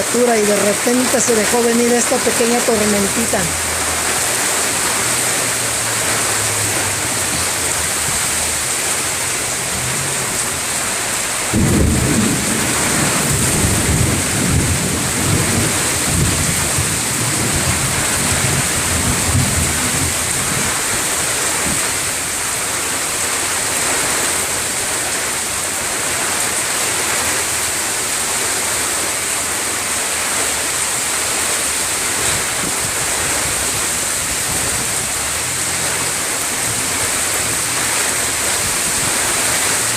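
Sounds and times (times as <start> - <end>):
heavy rain pouring: 0.0 - 39.9
thunder rumble: 9.4 - 21.8.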